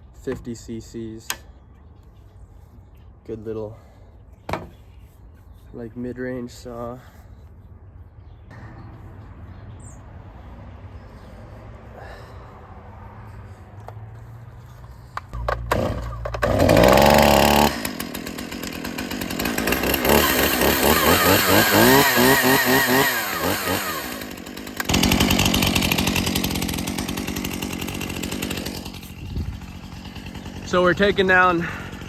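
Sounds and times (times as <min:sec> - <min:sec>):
chainsaw starting and revving: 0:15.3 - 0:32.0.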